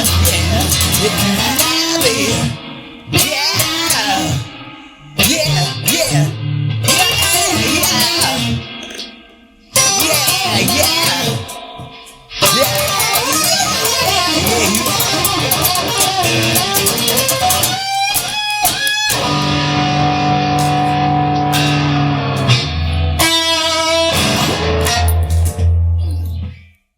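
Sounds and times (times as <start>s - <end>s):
electric guitar rock music: 0.0s - 26.6s
bass guitar: 0.0s - 26.7s.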